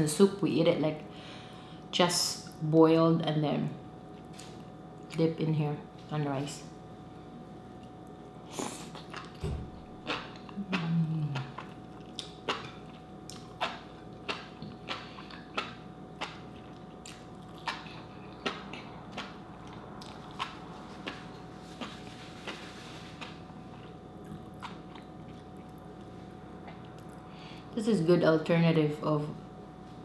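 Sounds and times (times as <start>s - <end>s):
wet chewing: 8.8s - 9.4s, 10.0s - 25.8s
person humming mmm: 10.5s - 11.7s.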